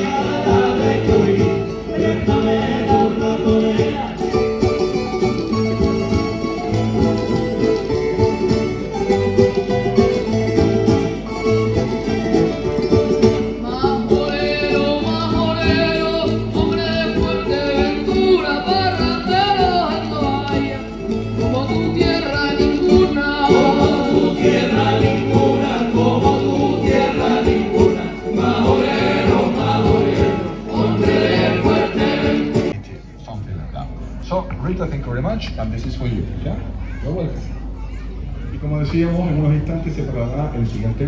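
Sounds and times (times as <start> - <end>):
repeating bass line: 0.0 - 4.3, 23.5 - 32.7
voices singing together: 0.0 - 5.2, 13.2 - 32.8
guitars strummed: 0.0 - 32.7.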